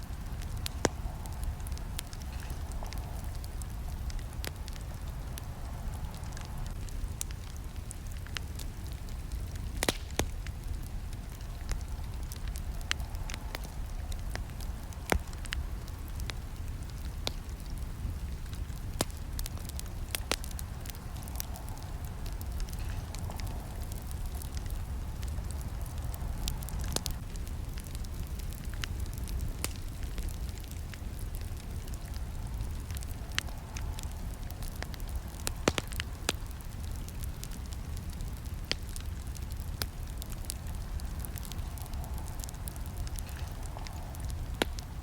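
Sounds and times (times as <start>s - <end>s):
low rumble of flames: 0.0s - 45.0s
burning wood popping and snapping: 0.1s - 45.0s.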